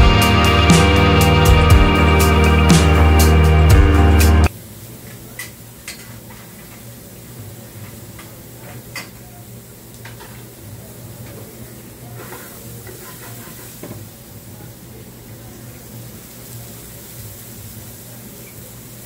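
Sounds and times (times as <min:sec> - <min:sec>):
steady low hum: 0:00.0 - 0:04.5
vegetables sizzling in skillets: 0:04.5 - 0:19.0.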